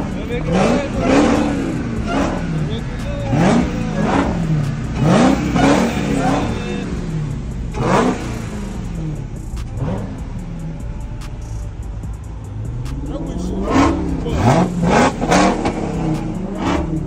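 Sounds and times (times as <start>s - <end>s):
car engine revving in blips: 0.0s - 17.0s.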